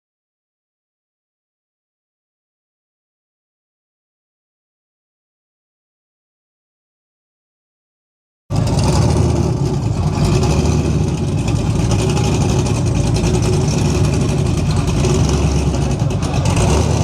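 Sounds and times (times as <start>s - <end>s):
car engine exhaust running: 8.5s - 17.0s.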